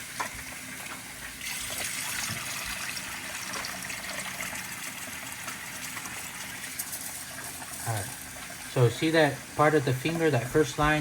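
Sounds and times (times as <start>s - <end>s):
tap water running into pot: 0.0s - 11.0s.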